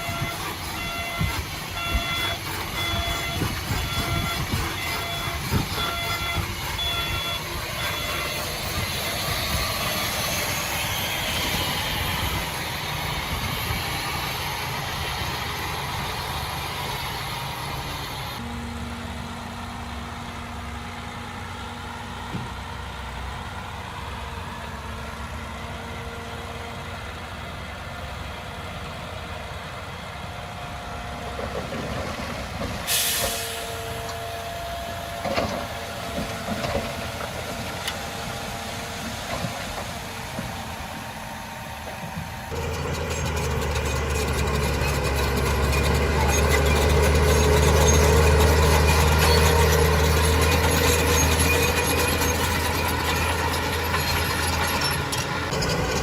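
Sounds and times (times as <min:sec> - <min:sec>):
diesel machinery engines running: 0:00.0 - 0:56.0
air hiss burst: 0:32.9 - 0:33.8.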